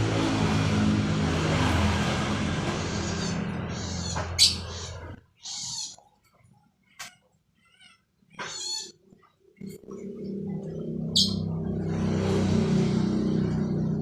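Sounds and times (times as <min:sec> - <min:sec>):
low engine drone: 0:00.0 - 0:05.3, 0:09.4 - 0:14.0
sparrow chirping: 0:02.9 - 0:06.0, 0:11.1 - 0:11.5.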